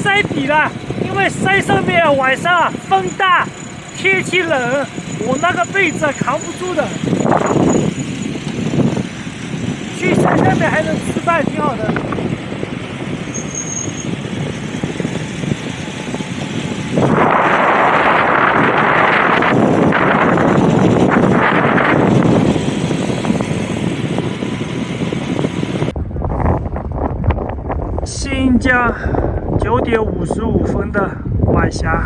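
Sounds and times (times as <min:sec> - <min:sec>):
rushing wind and road noise: 0:00.0 - 0:32.0.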